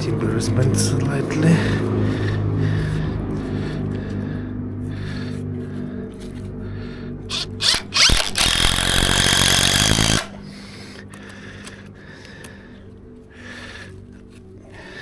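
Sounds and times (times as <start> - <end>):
power driver driving screw into wood: 7.3 - 10.7.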